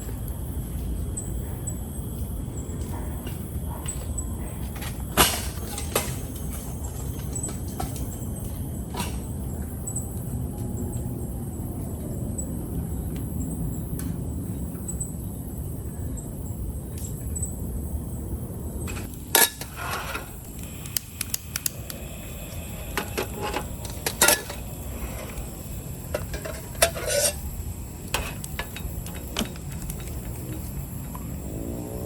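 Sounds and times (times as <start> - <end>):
metal cookware clinking: 19.3 - 20.2, 23.0 - 30.8.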